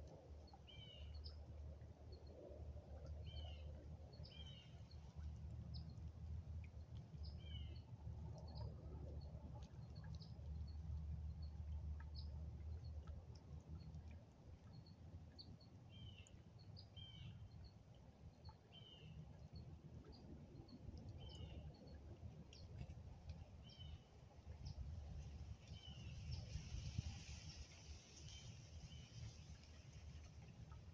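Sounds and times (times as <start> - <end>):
faint birdsong: 6.7 - 26.9
soft hiss: 21.2 - 30.9.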